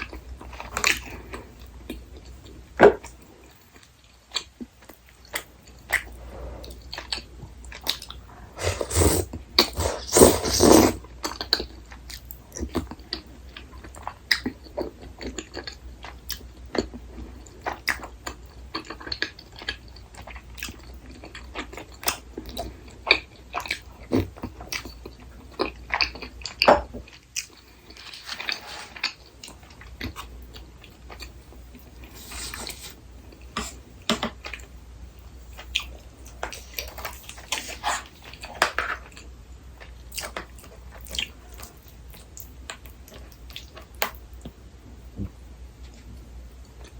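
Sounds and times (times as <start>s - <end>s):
chewing and biting food: 11.2s - 31.9s, 35.6s - 44.0s.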